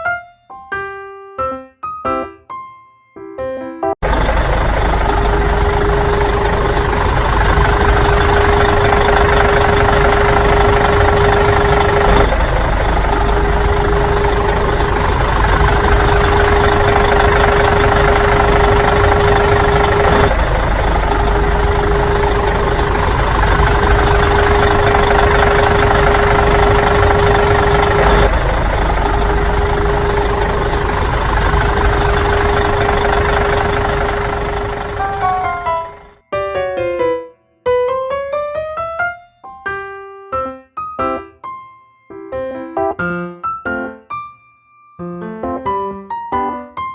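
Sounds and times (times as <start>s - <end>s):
engine idling: 4.0s - 36.2s.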